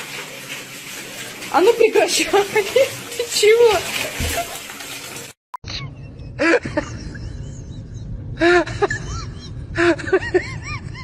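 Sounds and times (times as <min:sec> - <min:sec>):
steady low rumble: 0:06.1 - 0:11.0.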